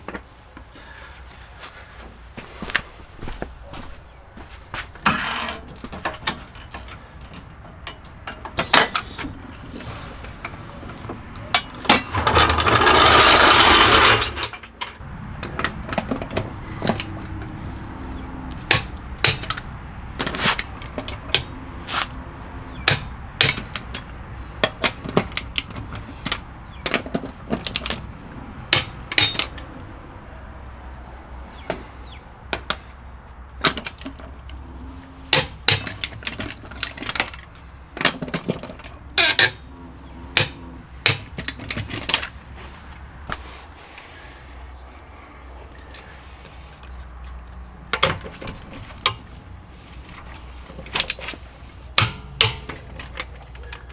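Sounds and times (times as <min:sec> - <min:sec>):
hand tools clicking and knocking: 0:04.4 - 0:53.9
power tool running: 0:12.0 - 0:14.5.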